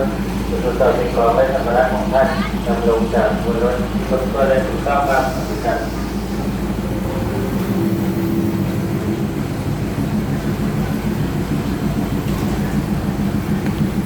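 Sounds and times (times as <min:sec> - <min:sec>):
train diesel engine hum: 0:00.0 - 0:14.0
faint higher tone: 0:06.8 - 0:11.6.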